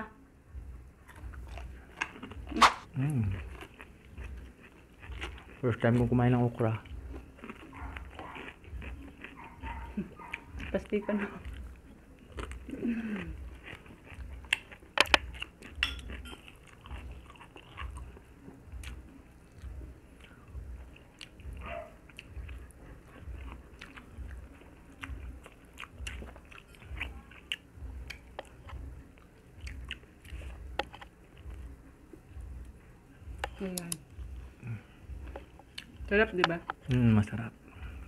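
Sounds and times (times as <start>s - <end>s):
chewing food: 0.5s - 38.0s
wet mouth smacks: 2.5s - 2.9s.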